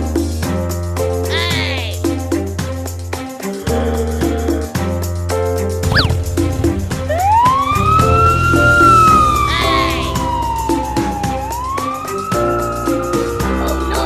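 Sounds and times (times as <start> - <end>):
children's cartoon music: 0.0 - 14.0
swirling effect: 5.9 - 13.4
siren-like gliding tone: 7.1 - 13.8.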